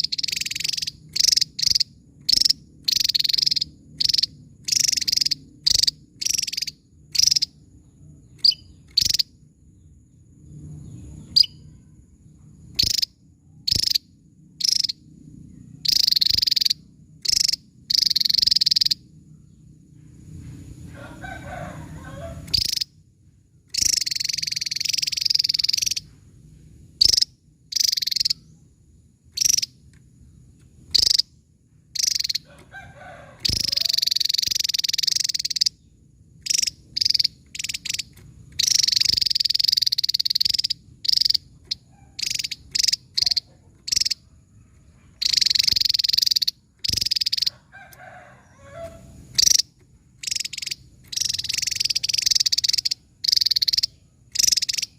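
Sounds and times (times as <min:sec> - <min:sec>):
bird singing high sharp bursts: 0:00.0 - 0:07.6, 0:08.3 - 0:09.4, 0:12.7 - 0:15.1, 0:15.7 - 0:19.1, 0:23.7 - 0:26.2, 0:29.4 - 0:29.8, 0:30.8 - 0:31.4, 0:32.0 - 0:32.5, 0:33.4 - 0:44.2, 0:45.1 - 0:47.5, 0:48.4 - 0:54.9.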